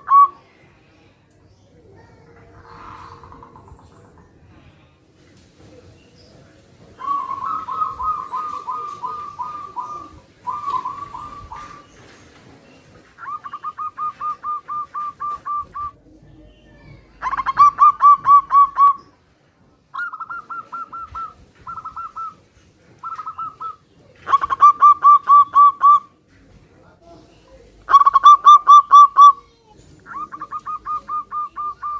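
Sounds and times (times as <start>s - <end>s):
doves cooing: 0.0s - 0.4s, 2.3s - 4.6s, 7.0s - 16.5s, 17.1s - 19.2s, 19.9s - 26.2s, 27.6s - 31.9s.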